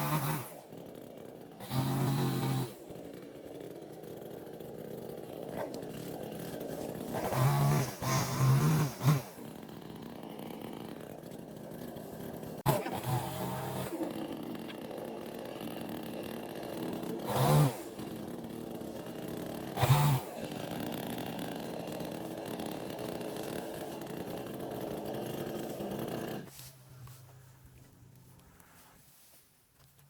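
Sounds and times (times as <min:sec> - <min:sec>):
chainsaw throttle surging: 0:00.0 - 0:26.7
chainsaw engine running: 0:00.0 - 0:27.2.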